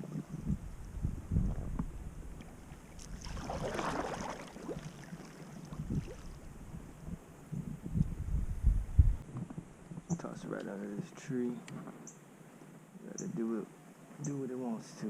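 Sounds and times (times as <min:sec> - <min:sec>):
wind rumbling on microphone: 0:00.0 - 0:10.6.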